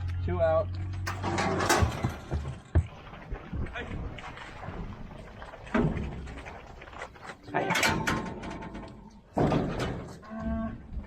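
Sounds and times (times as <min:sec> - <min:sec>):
metal gates banging and rattling: 0:01.0 - 0:02.7, 0:07.5 - 0:10.3.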